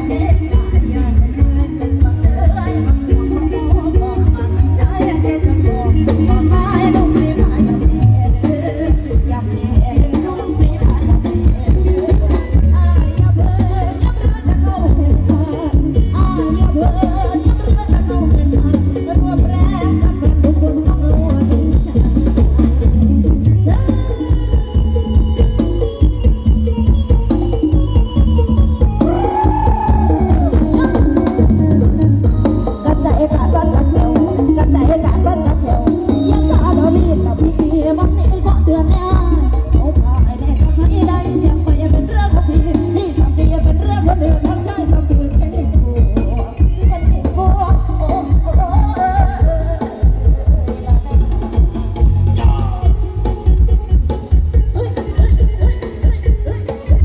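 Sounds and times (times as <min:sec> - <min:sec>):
live band music with bass and drums: 0:00.0 - 0:57.0
person singing: 0:00.0 - 0:57.0
loud procession music: 0:25.2 - 0:37.4.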